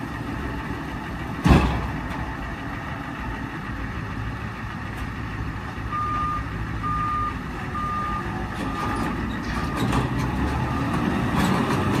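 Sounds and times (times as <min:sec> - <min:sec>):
truck engine running: 0:00.0 - 0:12.0
truck reversing alarm beeps: 0:05.8 - 0:09.9, 0:10.6 - 0:12.0.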